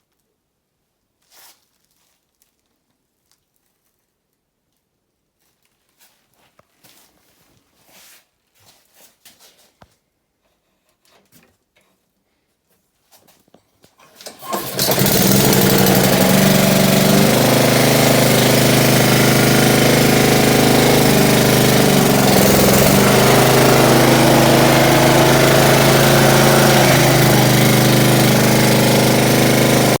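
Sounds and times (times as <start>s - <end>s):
lawn mower engine running: 14.2s - 30.0s.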